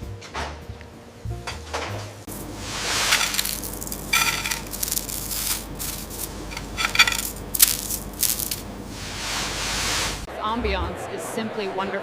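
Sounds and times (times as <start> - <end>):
metal kitchenware clattering: 1.4 - 2.3, 3.0 - 8.7.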